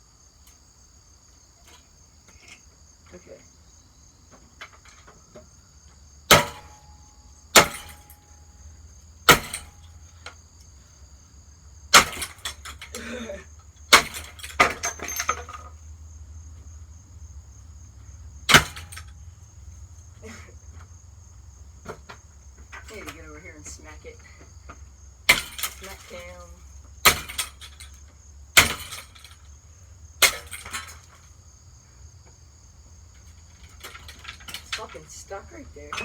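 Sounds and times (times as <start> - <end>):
crickets chirping: 0.0 - 36.0
loose parts rattling: 4.4 - 5.5, 9.2 - 10.4, 11.9 - 16.0, 18.4 - 21.0, 21.7 - 31.4, 33.1 - 36.0
hammer striking ceiling fan: 6.3 - 6.8, 7.6 - 8.1, 18.5 - 19.1.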